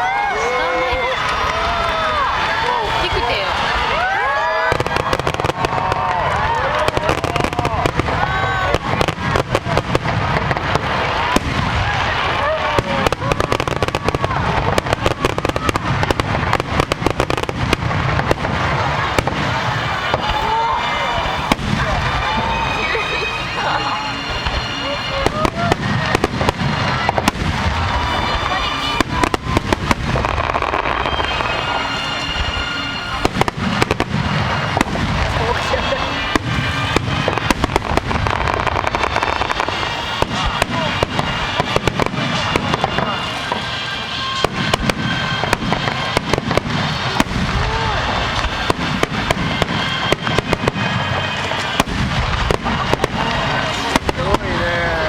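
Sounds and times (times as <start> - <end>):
fireworks crackling: 0.0 - 55.0
music playing: 17.0 - 55.0.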